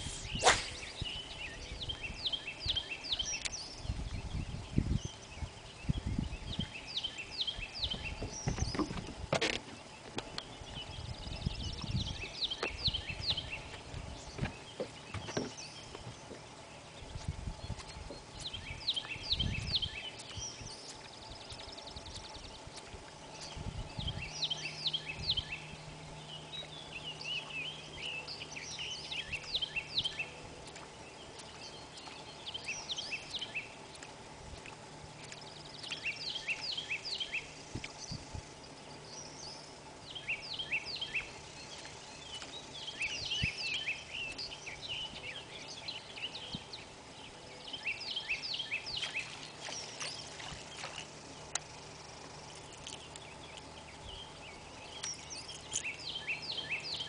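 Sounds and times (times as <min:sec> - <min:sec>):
faint steady hum: 0:00.0 - 0:57.0
songbird singing: 0:00.0 - 0:57.0.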